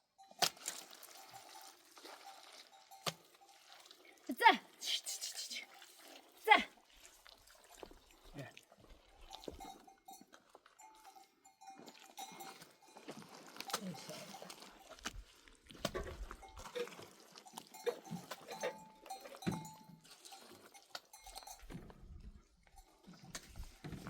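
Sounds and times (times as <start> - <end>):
livestock bells clinking: 0.0 - 4.1, 9.1 - 15.0, 16.3 - 23.6.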